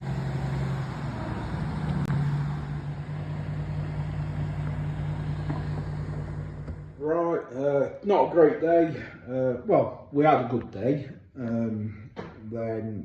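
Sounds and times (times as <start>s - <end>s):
truck engine droning: 0.0s - 9.6s.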